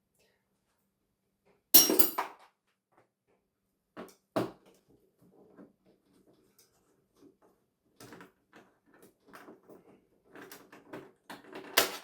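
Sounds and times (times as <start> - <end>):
clatter of parts and tools: 1.8 - 2.5.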